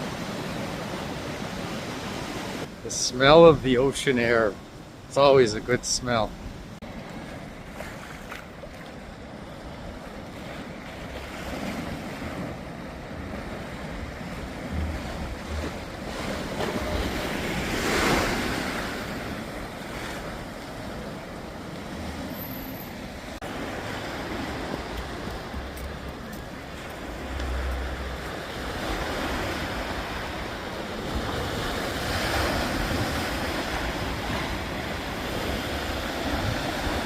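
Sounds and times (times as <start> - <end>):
ocean waves washing onto shore: 0.0 - 37.0
wind buffeting microphone: 8.4 - 22.3, 23.5 - 37.0.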